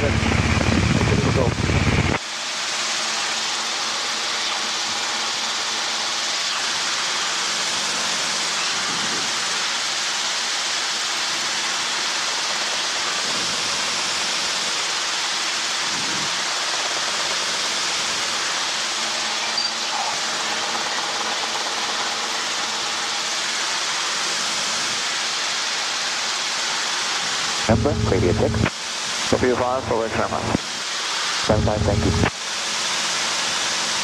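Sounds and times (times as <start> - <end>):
helicopter cabin noise: 0.0 - 9.7, 15.8 - 24.9, 27.6 - 32.6.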